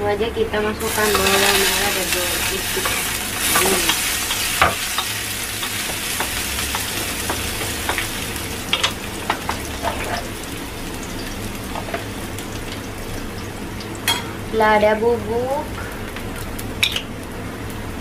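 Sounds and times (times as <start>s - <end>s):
food sizzling in hot oil: 0.8s - 17.8s
spatula scraping and knocking wok: 0.9s - 10.3s.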